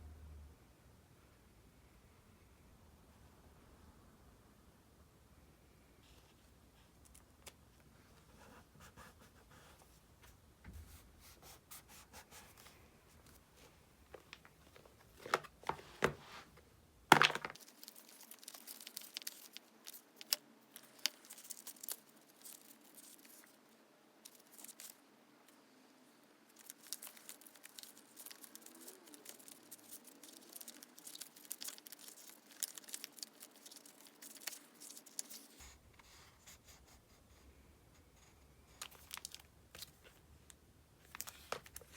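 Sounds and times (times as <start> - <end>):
paper crackling and rustling: 14.2 - 16.5, 17.1 - 23.6, 24.2 - 25.0, 26.5 - 36.2, 38.7 - 40.2, 41.0 - 41.9.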